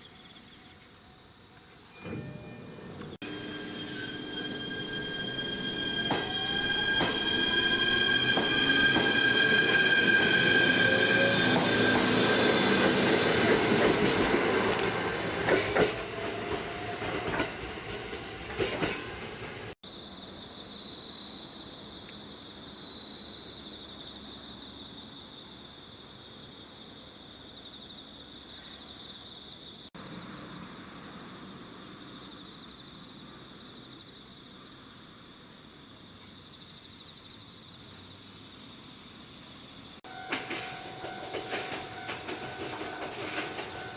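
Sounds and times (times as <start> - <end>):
train wheel squeal: 1.8 - 19.8, 40.0 - 43.9
thin high whine: 1.9 - 13.6
electric train running on rails: 1.9 - 19.8, 40.0 - 43.9.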